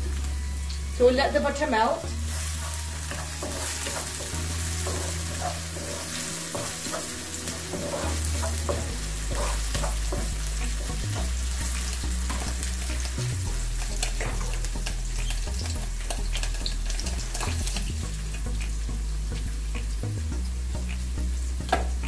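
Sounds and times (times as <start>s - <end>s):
vegetables sizzling in oil: 0.0s - 22.0s
spatula scraping and tapping pan: 2.3s - 18.7s.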